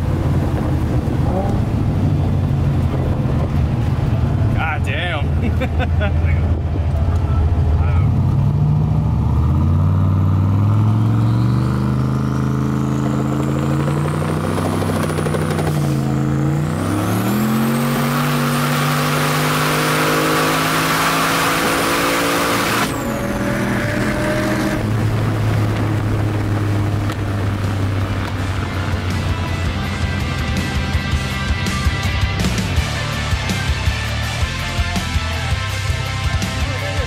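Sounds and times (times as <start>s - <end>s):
car engine at full throttle: 0.0s - 37.0s.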